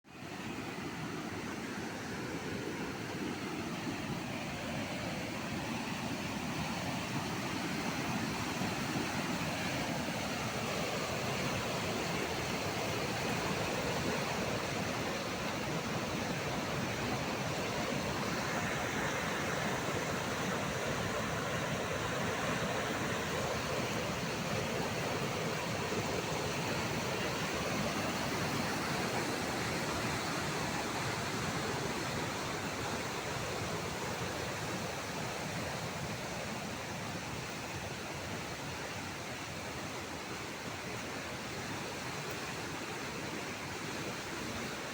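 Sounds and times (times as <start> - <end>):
rushing water: 0.1 - 44.9.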